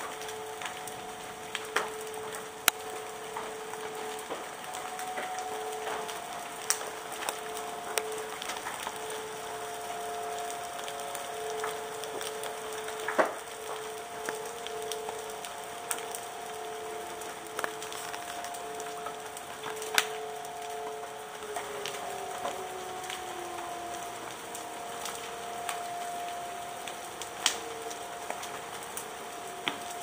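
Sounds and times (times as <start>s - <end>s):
faint steady hum: 0.0s - 30.0s
rain falling: 0.0s - 30.0s
hailstones knocking on hard surfaces: 10.6s - 20.3s.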